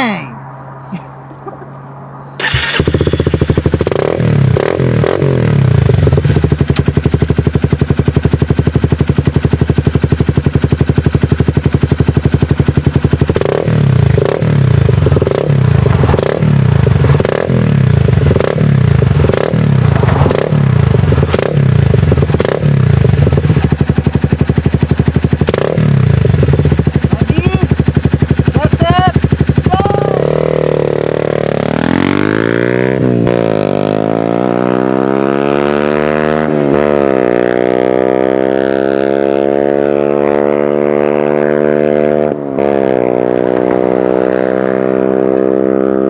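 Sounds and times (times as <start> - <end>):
motorcycle throttle blips: 2.4 - 33.5, 38.6 - 46.0
motorcycle idling: 2.4 - 34.0.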